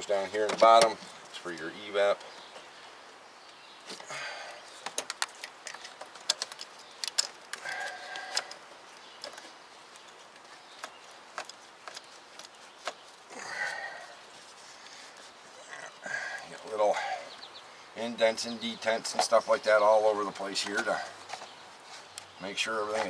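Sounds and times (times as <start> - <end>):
light clicks of plastic parts: 4.8 - 13.1, 20.4 - 22.3.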